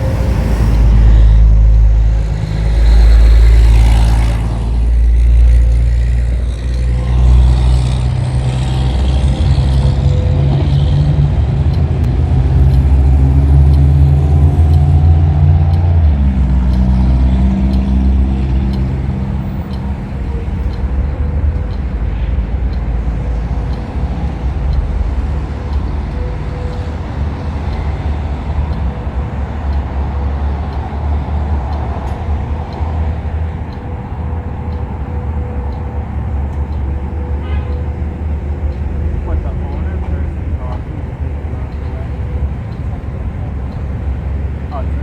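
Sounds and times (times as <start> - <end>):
car engine droning: 0.0 - 45.0
passing traffic rush: 0.0 - 45.0.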